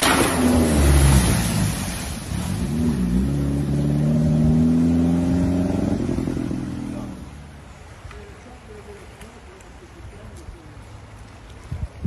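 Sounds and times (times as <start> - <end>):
car engine accelerating: 0.0 - 7.4.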